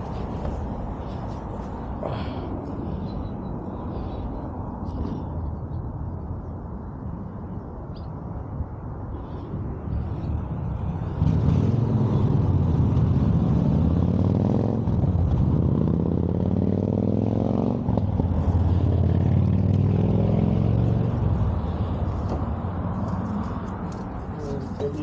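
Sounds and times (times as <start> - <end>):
vehicle engine revving: 11.1 - 22.4.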